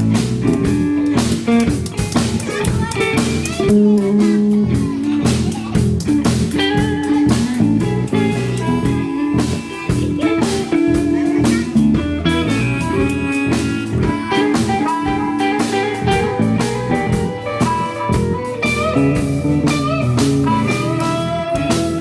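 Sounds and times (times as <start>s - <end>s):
bass guitar: 0.0s - 22.0s
drums: 0.0s - 22.0s
electric guitar lines: 0.0s - 22.0s.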